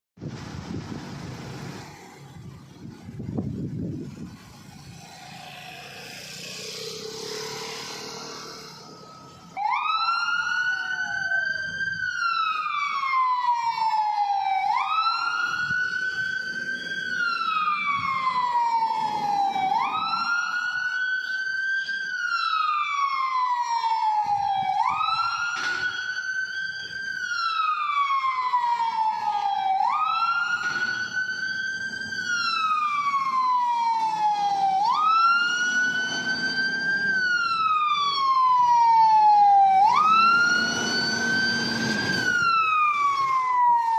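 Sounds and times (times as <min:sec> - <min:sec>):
emergency siren wailing: 0:00.2 - 0:43.9
vehicle engine and road noise: 0:00.2 - 0:43.9.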